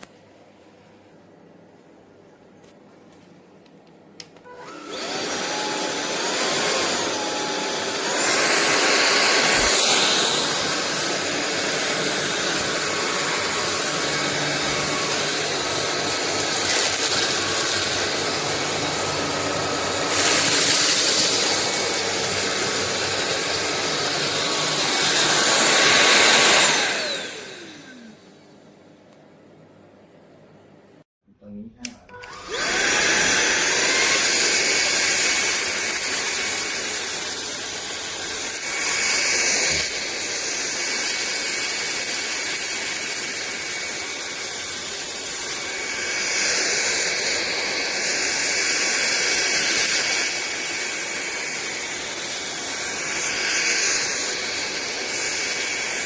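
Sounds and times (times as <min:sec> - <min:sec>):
vacuum cleaner motor whine: 0:04.3 - 0:28.7, 0:32.1 - 0:56.0
vacuum cleaner switch click: 0:31.8 - 0:32.5.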